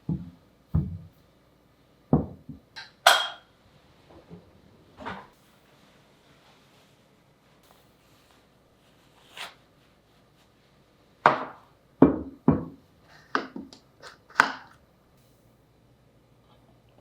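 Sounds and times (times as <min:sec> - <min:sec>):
kitchen knocks and clunks: 0:00.0 - 0:01.1, 0:02.1 - 0:03.5, 0:11.2 - 0:13.8.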